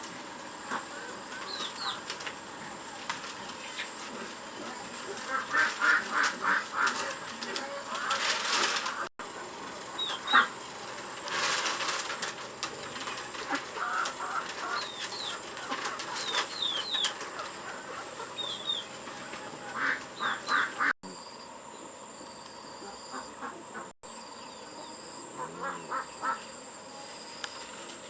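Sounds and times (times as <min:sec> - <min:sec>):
poultry clucking calls: 0:00.0 - 0:21.0, 0:22.7 - 0:28.0
wing flapping: 0:01.3 - 0:09.1, 0:09.8 - 0:20.9.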